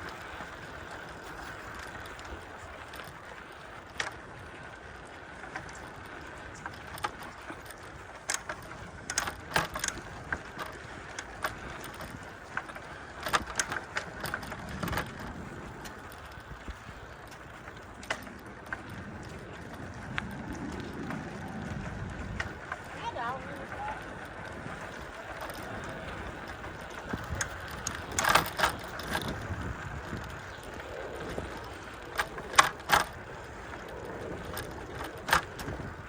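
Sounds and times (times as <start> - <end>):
bicycle tyres rolling: 0.0 - 36.0
bike clicking and rattling: 0.0 - 36.0
wind rush: 19.0 - 32.6.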